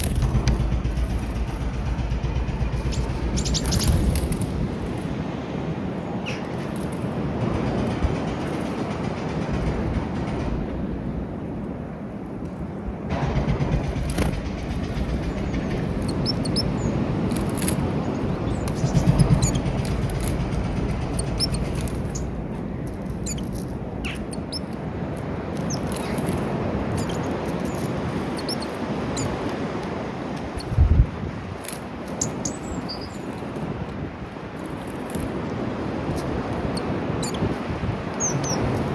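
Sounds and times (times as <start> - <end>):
small birds chirping: 0.0 - 5.1, 5.9 - 7.2, 14.1 - 24.8, 25.5 - 29.5, 30.4 - 30.8, 32.1 - 33.6, 36.2 - 37.6, 38.2 - 38.9
low outdoor rumble: 0.0 - 38.9.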